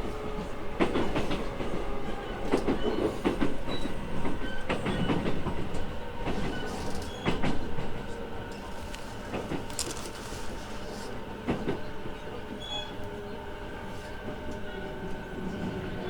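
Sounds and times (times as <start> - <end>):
train running rumble: 0.0 - 16.0
train wheels clattering over rail joints: 0.8 - 10.7.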